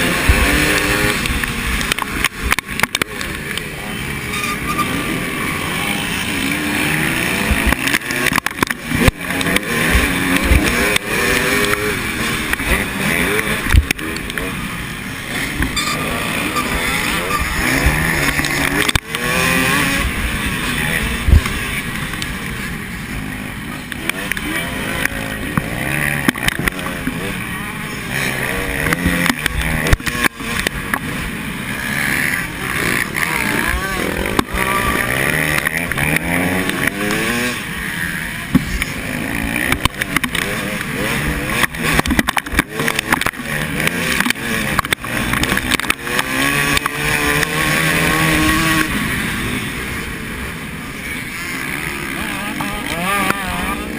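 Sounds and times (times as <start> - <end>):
motocross bikes revving: 0.0 - 53.9.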